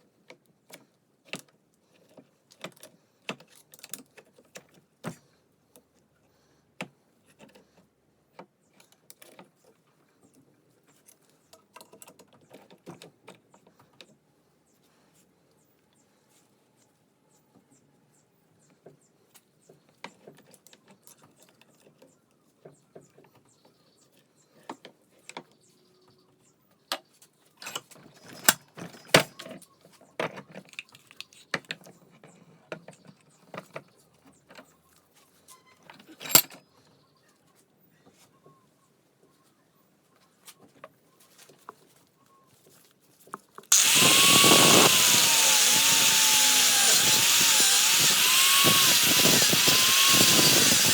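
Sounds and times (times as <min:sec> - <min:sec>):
hand tools clicking and knocking: 0:43.7 - 0:50.9
power grinder whining: 0:43.7 - 0:50.9.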